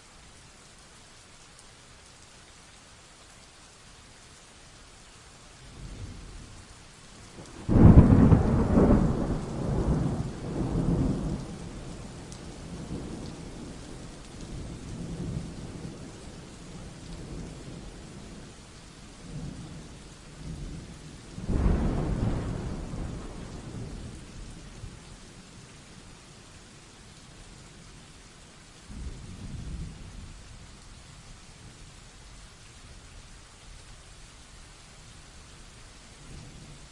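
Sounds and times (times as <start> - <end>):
steady rain hissing: 0.0 - 36.9
thunder claps: 7.6 - 11.8, 21.4 - 23.9.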